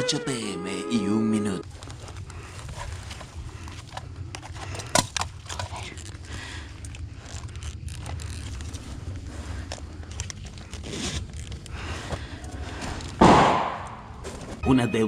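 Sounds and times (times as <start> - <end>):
steady low rumble: 1.1 - 14.6
clothing rustling on microphone: 1.6 - 4.7, 5.6 - 13.2.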